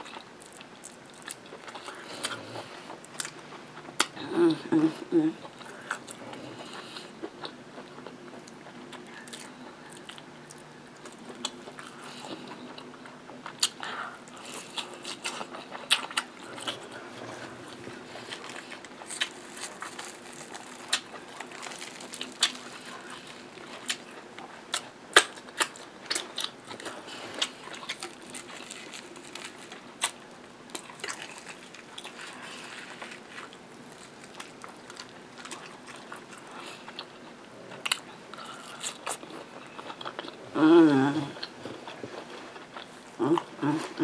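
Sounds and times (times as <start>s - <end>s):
chewing and lip-smacking: 5.5s - 40.4s.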